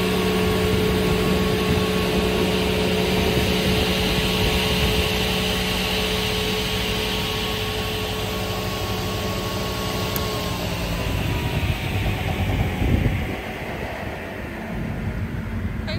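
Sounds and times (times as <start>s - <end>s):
saw machine humming: 0.0s - 15.9s.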